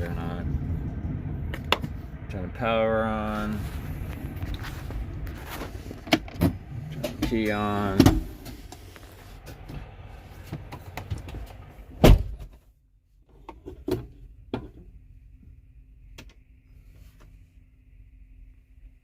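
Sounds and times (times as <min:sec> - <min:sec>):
faint electrical hum: 0:00.0 - 0:19.0
loud thunk in truck cab: 0:12.0 - 0:12.6.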